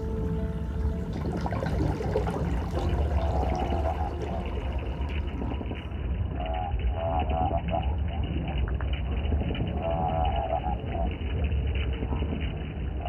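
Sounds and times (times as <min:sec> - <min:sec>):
fish croaking pulses: 0:00.0 - 0:05.9
low underwater rumble: 0:00.0 - 0:06.4.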